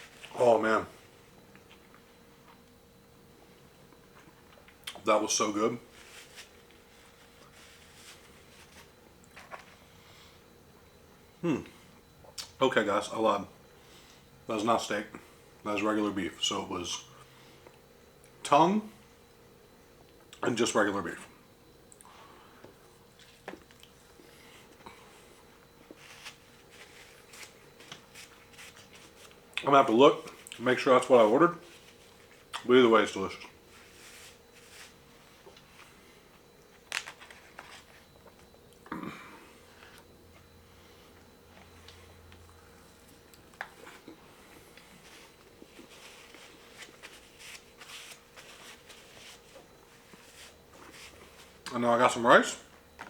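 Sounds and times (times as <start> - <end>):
thin steady hum: 0.0 - 53.0.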